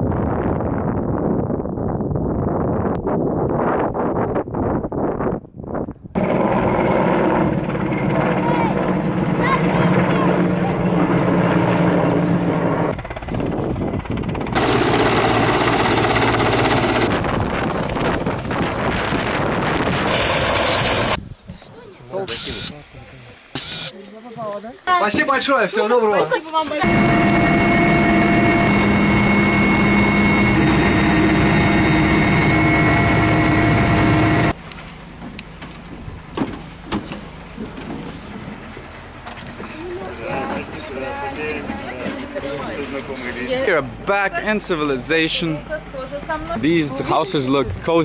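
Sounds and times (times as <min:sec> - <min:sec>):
helicopter engine and rotor drone: 0:06.2 - 0:21.2, 0:22.1 - 0:22.8, 0:23.5 - 0:23.9, 0:26.7 - 0:34.6.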